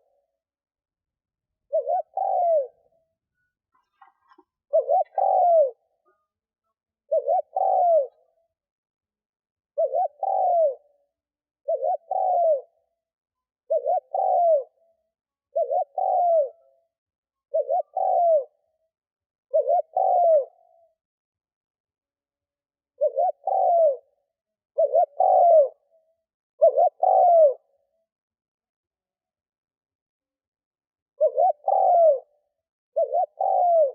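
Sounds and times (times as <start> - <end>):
dove cooing: 1.7 - 6.3, 7.0 - 8.4, 9.8 - 11.0, 11.6 - 12.8, 13.6 - 14.8, 15.5 - 16.8, 17.5 - 18.6, 19.5 - 20.8, 23.0 - 24.2, 24.8 - 25.9, 26.6 - 27.7, 31.2 - 33.9.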